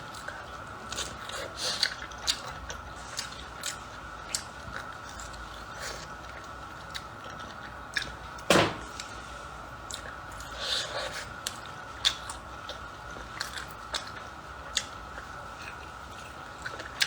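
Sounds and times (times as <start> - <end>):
chewing with wet clicks: 0.0 - 9.2, 9.8 - 17.0
loud knock: 8.5 - 8.9.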